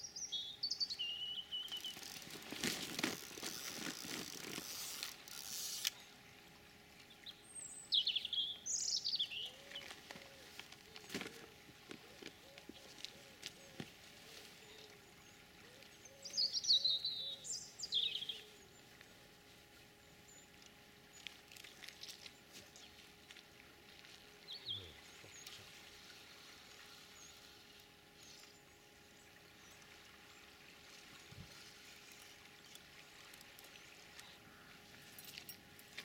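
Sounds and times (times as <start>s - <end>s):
bird chirping: 0.0s - 2.3s, 7.2s - 9.9s, 16.0s - 18.5s.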